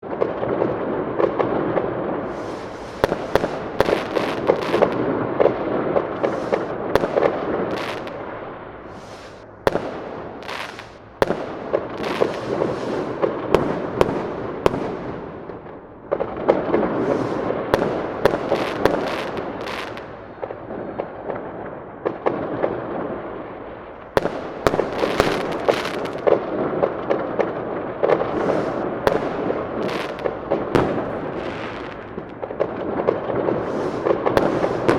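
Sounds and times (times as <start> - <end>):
fireworks crackling and banging: 0.0 - 34.9.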